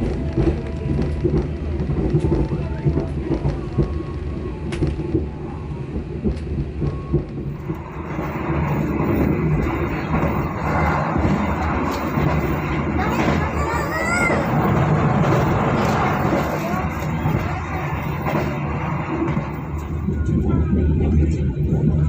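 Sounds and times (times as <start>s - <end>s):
train rumbling on rails: 0.0s - 22.0s
wheels clicking on track: 0.0s - 22.0s
loud rushing noise: 7.4s - 21.3s.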